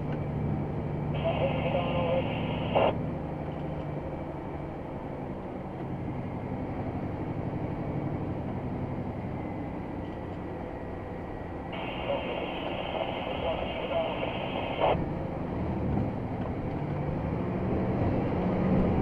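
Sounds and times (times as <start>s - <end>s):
truck diesel engine running: 10.6s - 15.4s.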